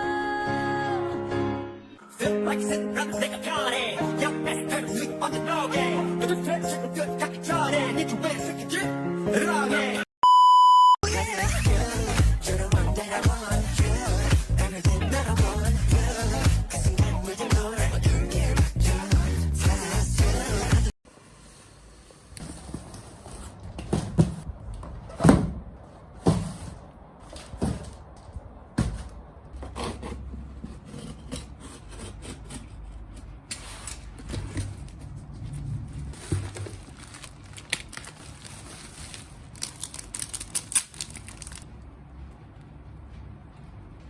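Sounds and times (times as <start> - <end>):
rubbing and scraping: 29.6 - 37.1
crackling rustles: 33.6 - 41.8.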